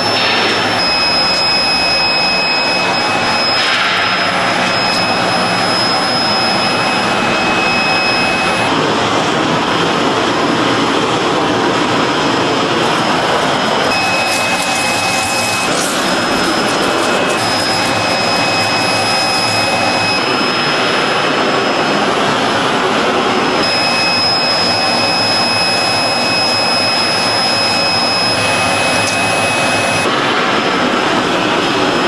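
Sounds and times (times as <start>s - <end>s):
thin high whine: 0.0s - 9.3s, 12.2s - 22.8s, 23.6s - 30.2s.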